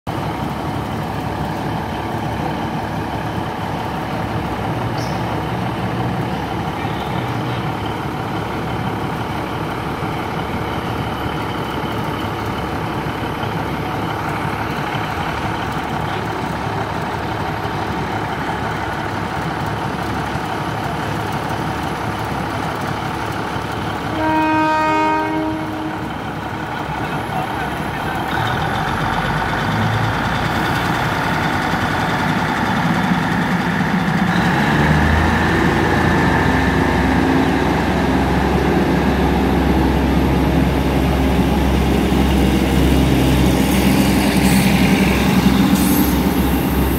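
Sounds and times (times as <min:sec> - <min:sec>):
diesel train running: 0:00.1 - 0:46.9
train horn blast: 0:24.1 - 0:26.2.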